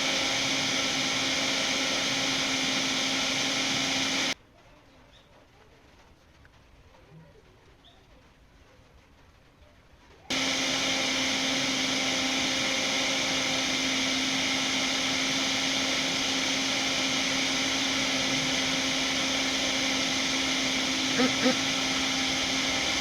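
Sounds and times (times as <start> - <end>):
small fan motor whooshing: 0.0 - 4.4, 10.3 - 23.0.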